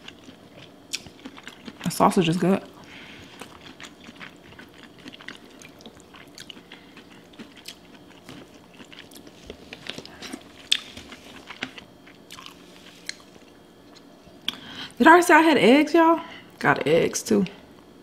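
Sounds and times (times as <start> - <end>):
close chewing food: 0.0 - 2.1, 3.1 - 14.0.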